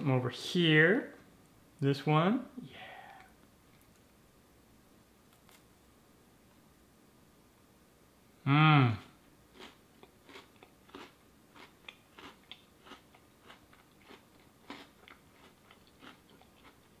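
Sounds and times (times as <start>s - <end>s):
cookie crunching as chewed: 9.5s - 17.0s.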